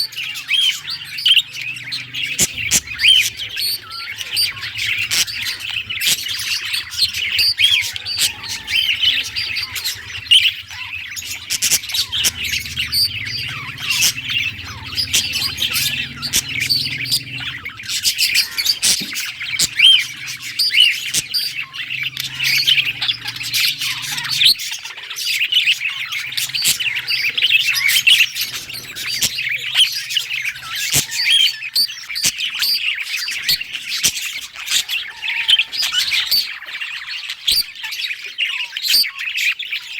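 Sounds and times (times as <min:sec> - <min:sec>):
budgerigars chattering: 0:00.0 - 0:39.9
faint low hum: 0:00.1 - 0:25.1.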